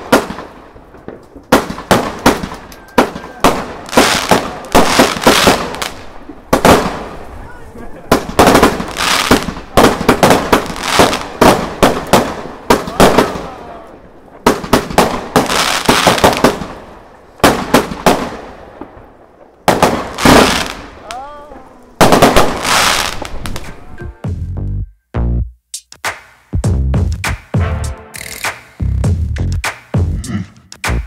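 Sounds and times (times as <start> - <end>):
fireworks banging: 0.0 - 24.6.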